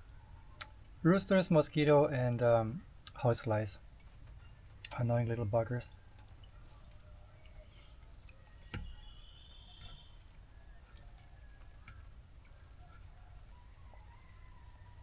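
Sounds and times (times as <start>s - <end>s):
bird chirps: 4.2s - 14.4s.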